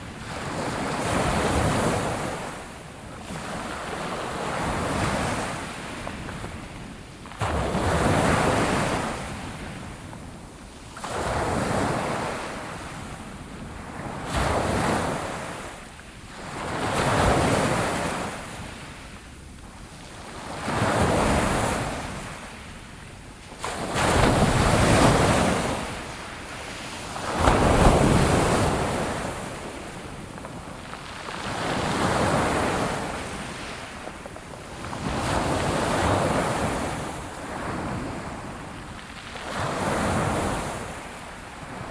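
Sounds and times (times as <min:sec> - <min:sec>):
sea waves breaking on shore: 0:20.1 - 0:41.9.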